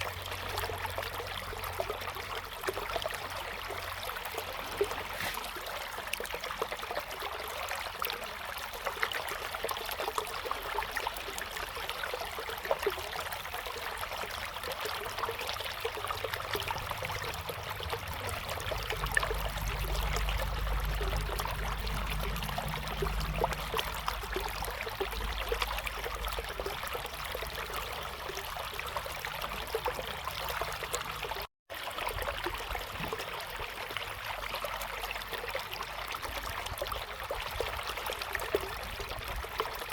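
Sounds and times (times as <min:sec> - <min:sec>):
river water babbling: 0:00.0 - 0:39.9
low rumble: 0:16.0 - 0:26.9.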